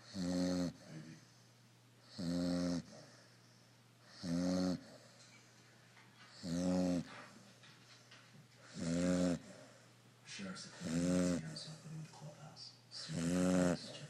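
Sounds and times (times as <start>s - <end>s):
puppy snoring: 0.0s - 1.3s, 2.0s - 3.4s, 4.0s - 5.4s, 6.2s - 7.6s, 8.6s - 9.9s, 10.7s - 12.0s, 13.0s - 14.0s.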